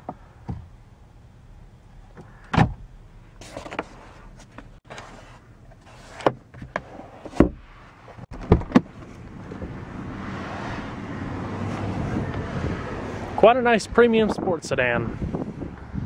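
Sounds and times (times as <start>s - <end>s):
steady rushing wind noise: 7.6s - 16.0s.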